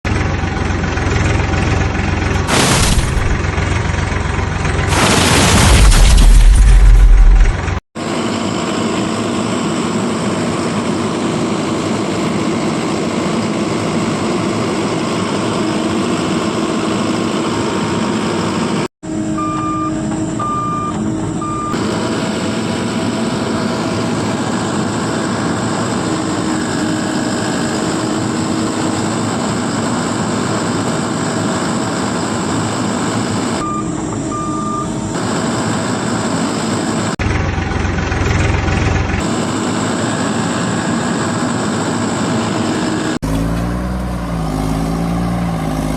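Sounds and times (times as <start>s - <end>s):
heavy vehicle engine running: 0.0s - 45.9s
reversing alarm beeping: 19.1s - 21.8s, 33.6s - 35.2s.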